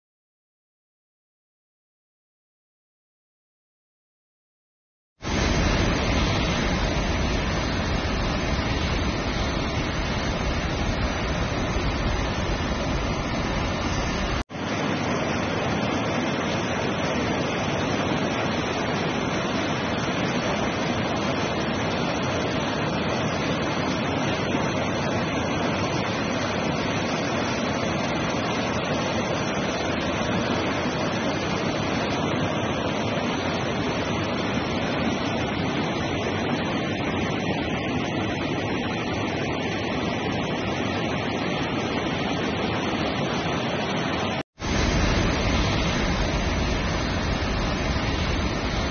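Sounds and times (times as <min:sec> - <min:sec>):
waterfall rushing water: 0:05.2 - 0:48.9.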